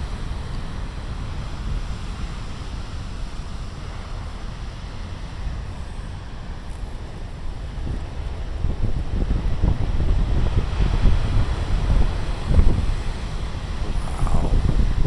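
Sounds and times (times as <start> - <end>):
wind buffeting microphone: 0.0 - 15.0
storm waves breaking on rocks: 7.8 - 15.0.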